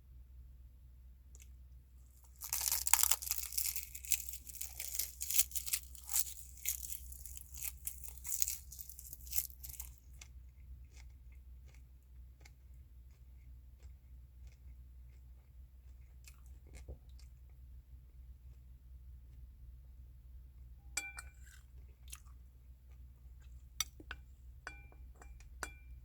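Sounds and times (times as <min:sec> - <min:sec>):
loud crinkling tearing crunch: 0:02.2 - 0:10.0
soft chewing clicks: 0:02.3 - 0:17.6, 0:21.3 - 0:24.3.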